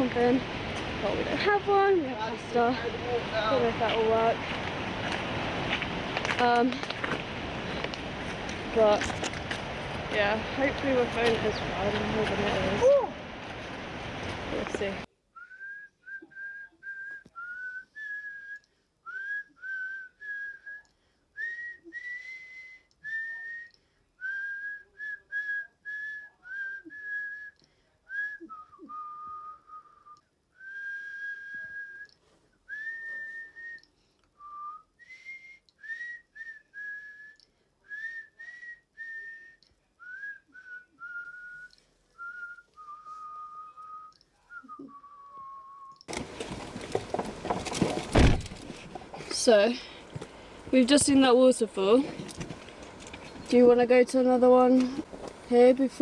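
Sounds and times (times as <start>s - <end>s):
person whistling a tune: 15.4s - 46.1s.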